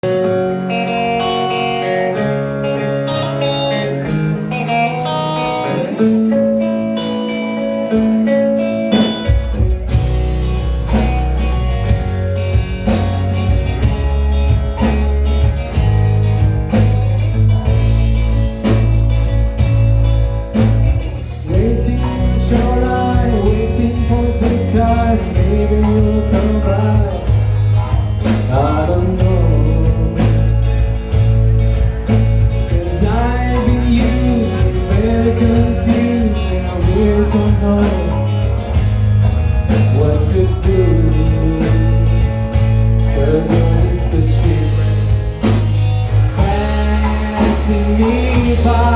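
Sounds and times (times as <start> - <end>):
live rock band playing: 0.0 - 48.9
person singing: 21.4 - 30.8, 32.6 - 38.7, 39.7 - 48.9.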